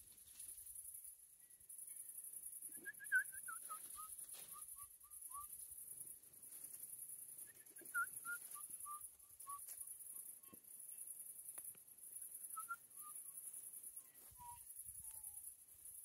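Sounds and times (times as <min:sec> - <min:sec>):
bird whistling notes: 0:02.8 - 0:05.5, 0:12.5 - 0:13.3.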